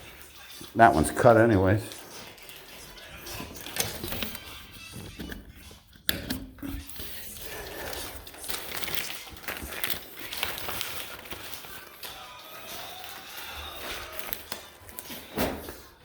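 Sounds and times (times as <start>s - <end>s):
carpet rustling and crinkling: 6.8s - 16.0s.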